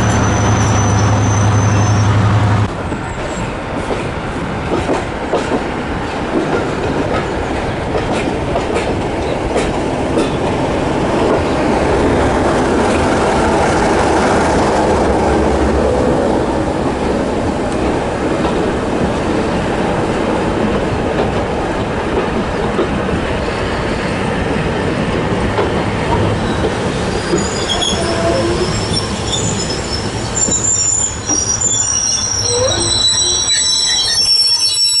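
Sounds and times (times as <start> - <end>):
high-pitched wheel squeal: 0.0 - 2.2, 26.4 - 35.0
train wheels rumbling on track: 0.0 - 35.0.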